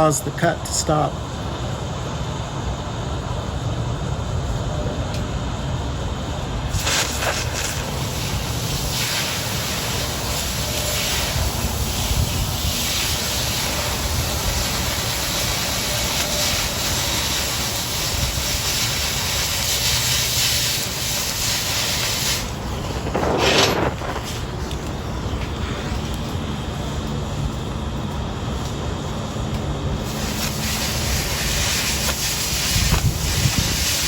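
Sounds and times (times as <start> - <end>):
cutting torch hissing: 6.6 - 27.0, 28.6 - 34.0.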